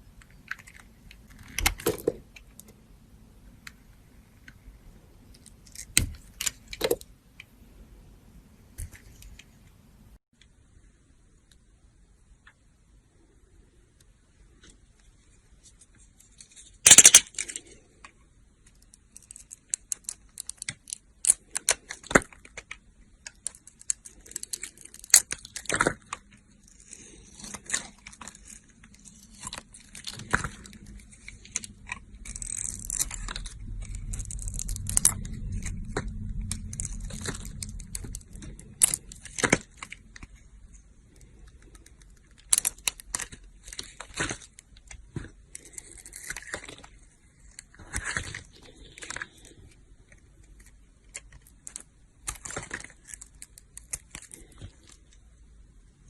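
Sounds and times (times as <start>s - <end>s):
low hum: 28.0s - 42.5s.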